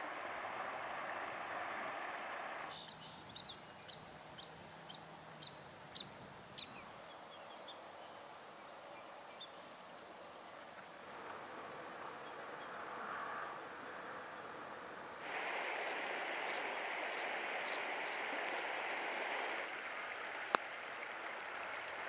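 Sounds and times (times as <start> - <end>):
steady rushing noise: 0.0 - 2.7, 10.9 - 22.0
small songbird chirping: 2.6 - 10.2, 15.6 - 19.6.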